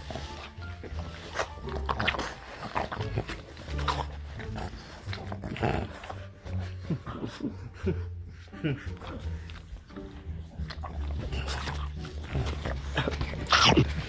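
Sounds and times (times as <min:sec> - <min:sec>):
puppy yelping excitedly: 0:13.5 - 0:13.9.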